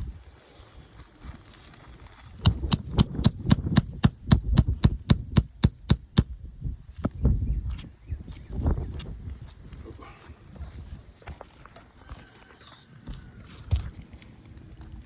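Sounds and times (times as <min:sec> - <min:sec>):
hammer blows: 0:02.4 - 0:06.3.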